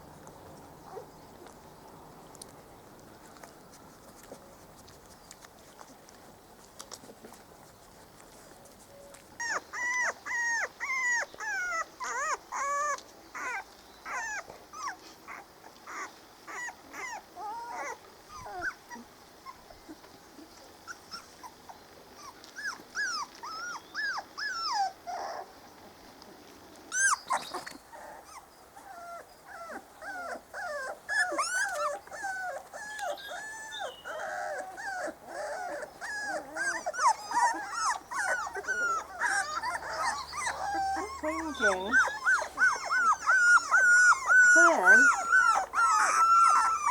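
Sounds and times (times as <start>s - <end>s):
puppies whimpering: 0.8s - 1.5s, 9.4s - 25.6s, 26.9s - 46.9s.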